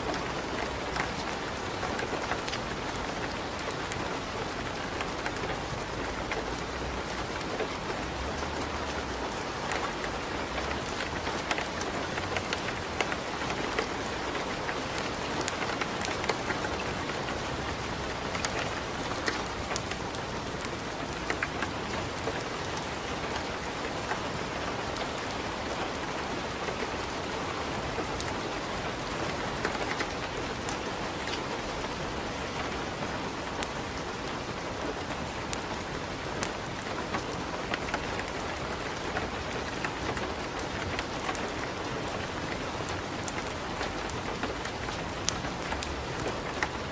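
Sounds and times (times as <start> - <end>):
fireplace fire crackling: 0.0 - 46.9
steady rain falling: 0.0 - 46.9.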